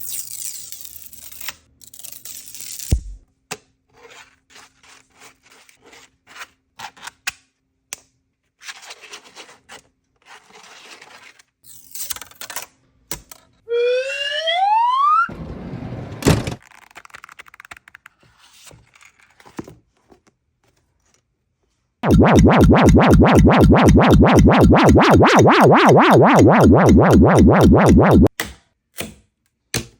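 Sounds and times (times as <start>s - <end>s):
rising whine: 22.0s - 28.3s.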